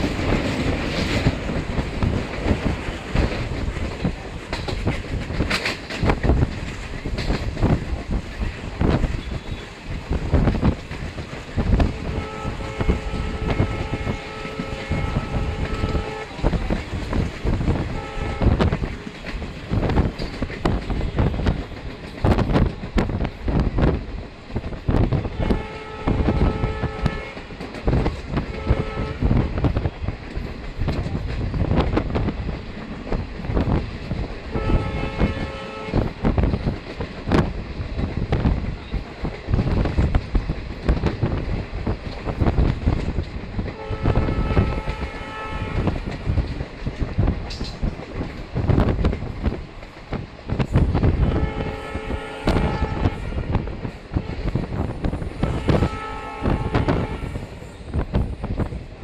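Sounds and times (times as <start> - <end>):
train wheels rumbling on rails: 0.0 - 59.0
train horn: 9.2 - 9.8, 11.8 - 18.9, 25.2 - 29.9, 34.5 - 36.2, 43.7 - 46.2, 51.1 - 57.7.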